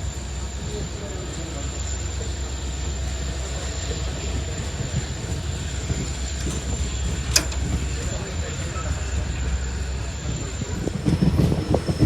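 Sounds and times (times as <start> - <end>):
train rumble: 0.0 - 12.0
sharp click: 7.3 - 7.8.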